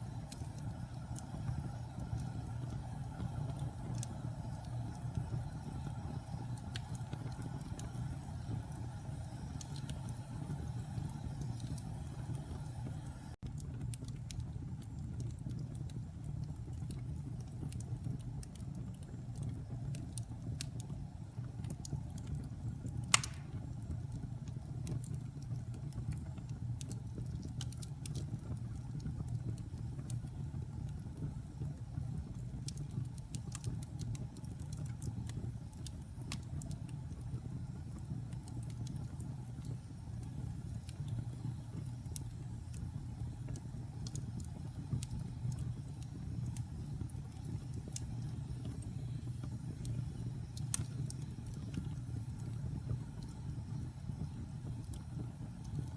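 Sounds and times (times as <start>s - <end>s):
wood fire crackling: 0.0s - 55.9s
loud fire pop: 23.1s - 23.7s.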